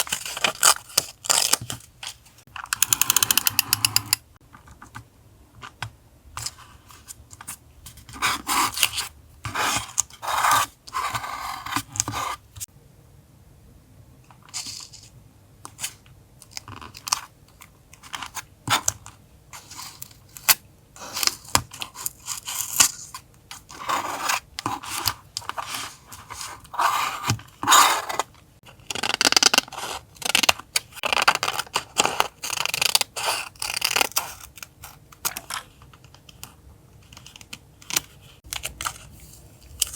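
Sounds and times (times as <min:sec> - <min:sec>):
faint steady hum: 0:01.8 - 0:28.9.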